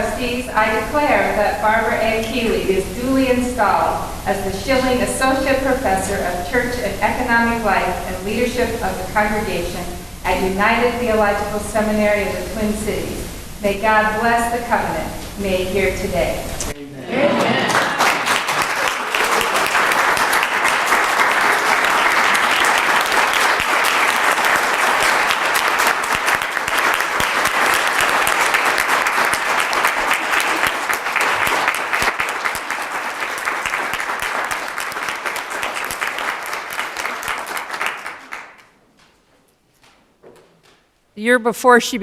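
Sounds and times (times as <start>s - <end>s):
audience applauding: 17.2s - 38.8s.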